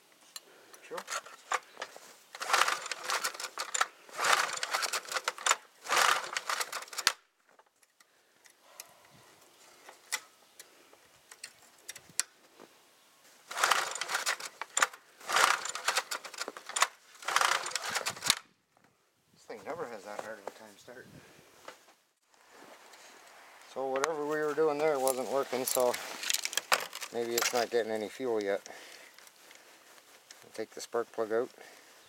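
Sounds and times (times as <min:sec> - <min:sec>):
recoil starter pulls: 0:00.9 - 0:07.2, 0:13.5 - 0:18.4
small engine cranking: 0:01.0 - 0:07.2, 0:13.5 - 0:18.4.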